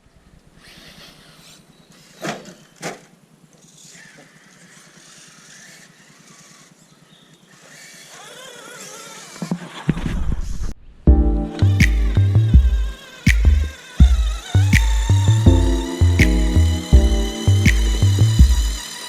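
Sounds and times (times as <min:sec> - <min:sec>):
small electric motor whine: 0:00.6 - 0:09.9, 0:11.5 - 0:19.0
sharp knocks: 0:11.1 - 0:18.8.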